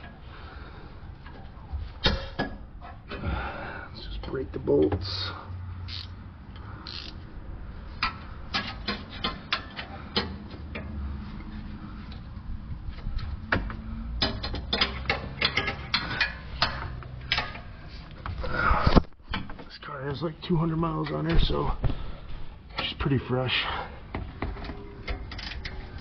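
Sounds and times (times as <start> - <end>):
socket ratchet clicking: 5.9 - 6.2, 6.8 - 7.2.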